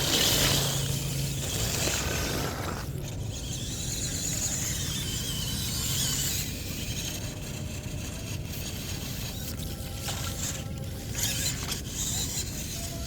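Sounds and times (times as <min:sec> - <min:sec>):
electric motor whirring: 0:00.0 - 0:13.0.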